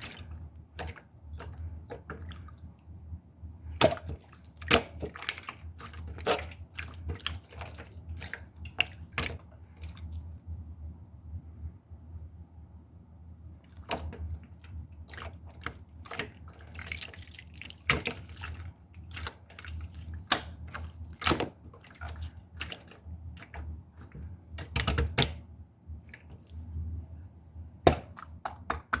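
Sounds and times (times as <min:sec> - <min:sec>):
slime squished by hand: 0:13.6 - 0:25.4.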